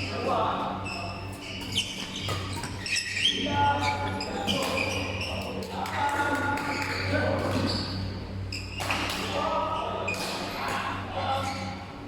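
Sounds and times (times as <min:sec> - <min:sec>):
steady low hum: 0:00.0 - 0:12.0
sneakers squeaking on court: 0:00.8 - 0:05.6, 0:06.6 - 0:09.2.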